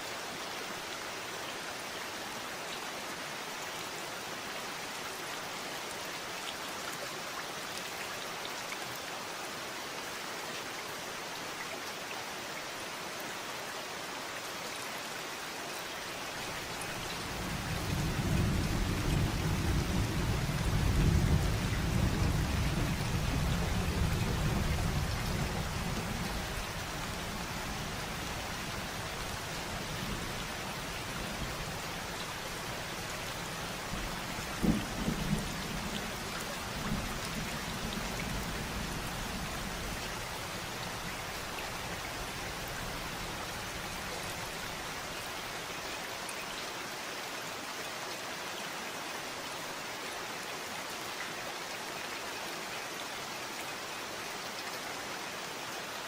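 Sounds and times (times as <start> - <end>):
steady rain falling: 0.0 - 56.0
low rumble of thunder: 16.8 - 45.2.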